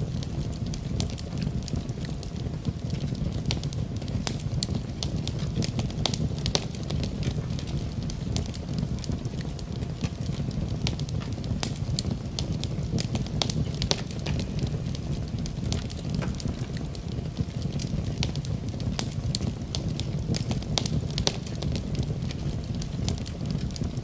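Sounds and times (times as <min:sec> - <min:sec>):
low rumble of burning logs: 0:00.0 - 0:24.0
wood fire crackling and popping: 0:00.0 - 0:24.0.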